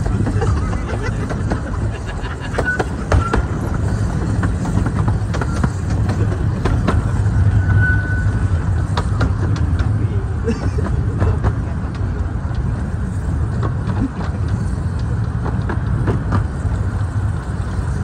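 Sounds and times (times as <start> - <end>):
miniature train rumbling: 0.0 - 18.0
brief high squeals: 7.5 - 8.5.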